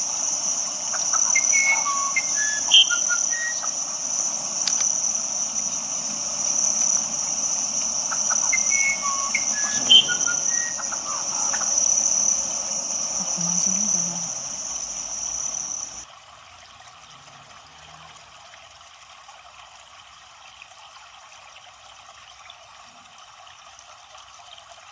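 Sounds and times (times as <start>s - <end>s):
shrill insect drone: 0.0s - 16.0s
waterfall rushing: 0.0s - 16.0s.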